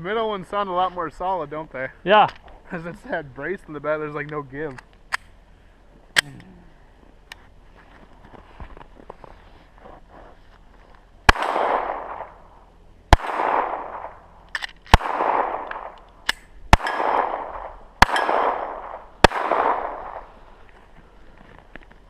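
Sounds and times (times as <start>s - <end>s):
gunshots with echo: 11.3s - 12.4s, 13.1s - 14.2s, 14.9s - 16.0s, 16.7s - 20.4s
faint sharp cracks: 13.1s - 22.0s.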